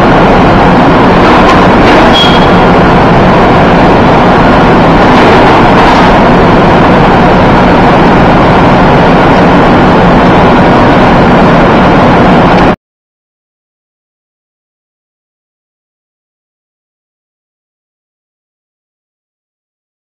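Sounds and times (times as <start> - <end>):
engine and machinery rumble: 0.0 - 12.8.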